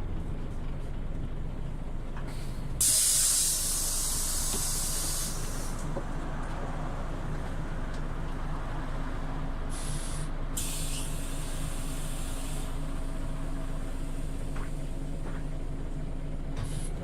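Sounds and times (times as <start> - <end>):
bus engine running: 0.0 - 17.0
compressed air hissing: 2.3 - 5.9, 9.7 - 12.8.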